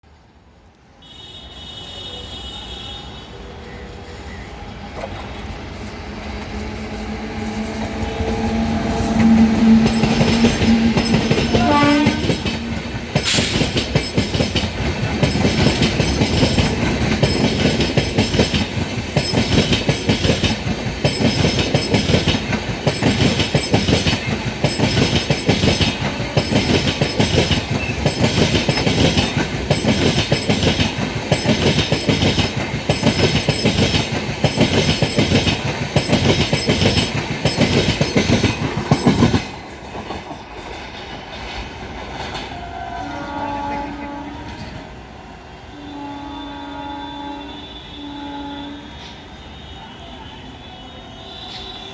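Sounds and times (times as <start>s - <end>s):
locomotive horn: 1.0s - 3.7s, 7.0s - 13.4s, 42.6s - 44.9s, 45.7s - 51.9s
train rumble: 2.3s - 49.8s
wheels clattering over rail joints: 8.0s - 42.6s.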